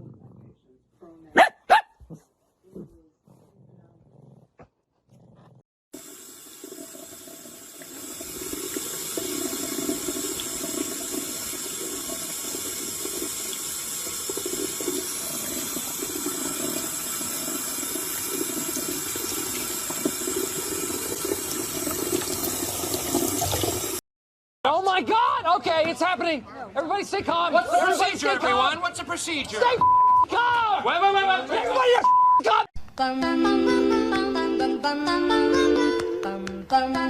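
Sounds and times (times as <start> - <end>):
running water rushing: 6.0 - 24.0.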